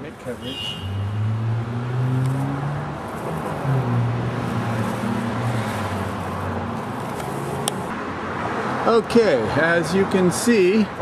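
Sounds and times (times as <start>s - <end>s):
vehicle engine humming: 0.0s - 8.0s.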